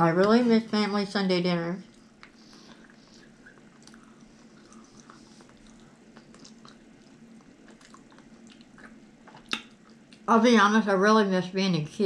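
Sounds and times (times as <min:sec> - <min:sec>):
wet chewing: 0:01.8 - 0:10.3.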